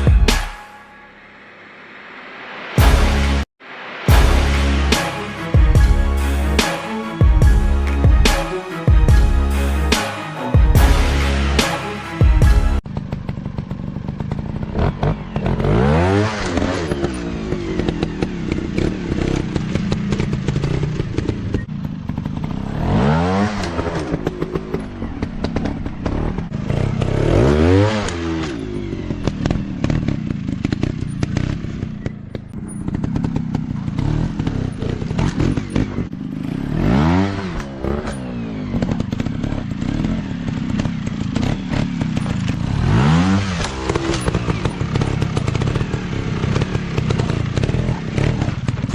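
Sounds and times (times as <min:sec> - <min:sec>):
dirt bike engines revving: 0:14.6 - 0:48.9.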